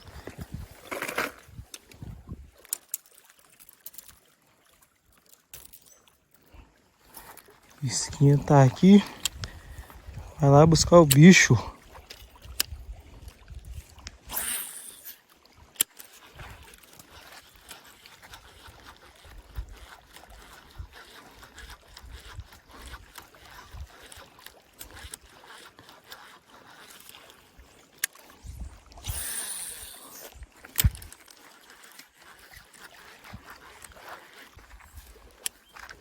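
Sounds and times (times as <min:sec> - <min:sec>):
water sloshing and gurgling: 0:00.0 - 0:36.0
fishing gear knocks and clicks: 0:00.1 - 0:04.2, 0:05.2 - 0:06.2, 0:07.1 - 0:12.8, 0:15.8 - 0:18.4, 0:21.6 - 0:28.4, 0:29.0 - 0:36.0
short hissing rushes: 0:29.1 - 0:30.2.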